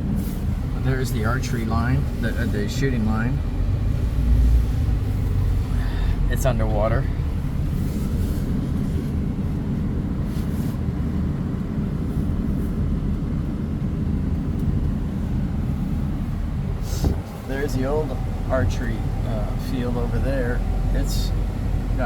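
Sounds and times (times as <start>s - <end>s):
tractor engine droning: 0.0s - 22.0s
short hisses: 16.8s - 17.4s.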